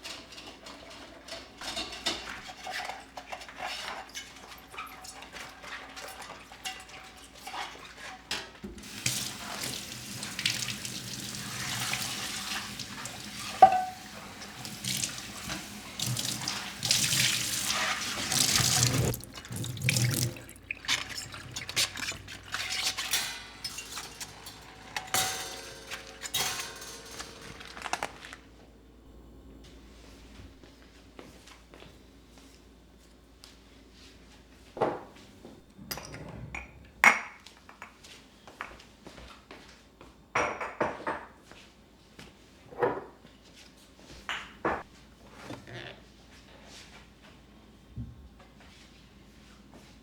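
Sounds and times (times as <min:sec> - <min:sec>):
dishes clattering: 0:00.0 - 0:05.1, 0:11.5 - 0:28.7
kitchen tap running into sink: 0:08.7 - 0:24.7
dish clinking: 0:12.4 - 0:16.5, 0:17.1 - 0:28.7.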